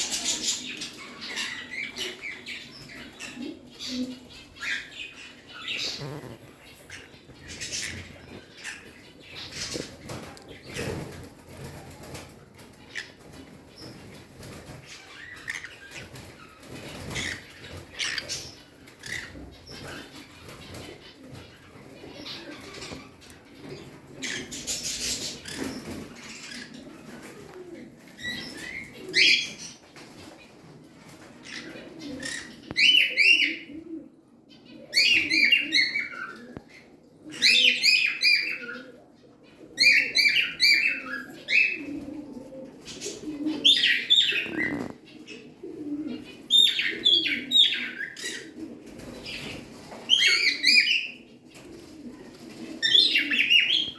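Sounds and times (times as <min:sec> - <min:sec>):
parrots chirping chatter: 0:03.9 - 0:10.8, 0:14.8 - 0:21.1, 0:43.6 - 0:45.0
wing flapping: 0:05.8 - 0:06.6.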